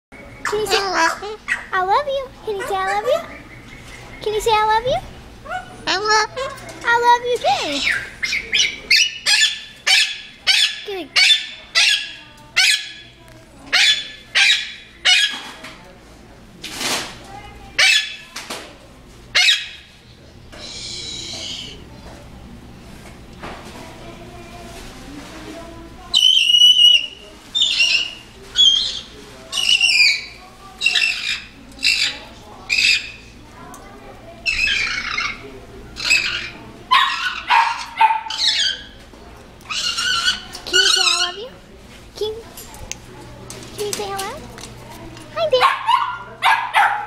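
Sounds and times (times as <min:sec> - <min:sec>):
talking bird calls: 0:00.2 - 0:15.6, 0:17.8 - 0:18.4, 0:19.3 - 0:22.2, 0:26.1 - 0:33.5, 0:34.3 - 0:41.6
bird squawking: 0:20.6 - 0:21.8, 0:26.2 - 0:33.2, 0:34.4 - 0:39.0, 0:39.7 - 0:41.5.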